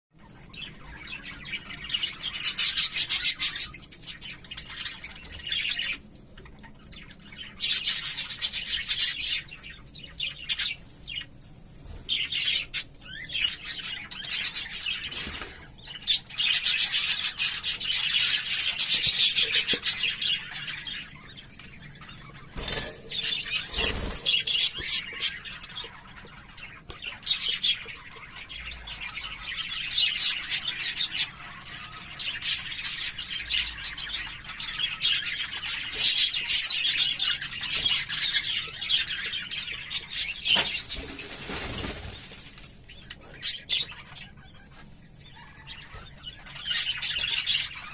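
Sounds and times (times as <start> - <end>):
budgerigars twittering: 0.2 - 11.3, 12.1 - 47.9.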